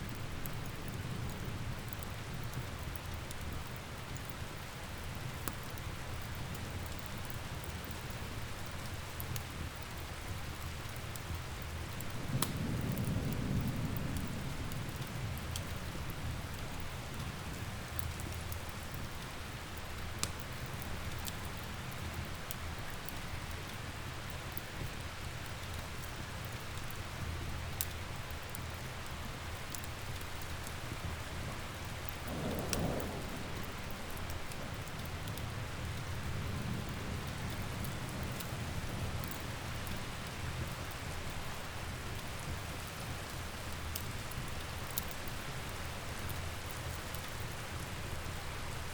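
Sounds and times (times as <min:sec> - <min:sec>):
steady rain: 0:00.0 - 0:48.9
wood fire crackling: 0:00.0 - 0:48.9
thunder rumbling: 0:12.2 - 0:16.3, 0:32.2 - 0:39.8.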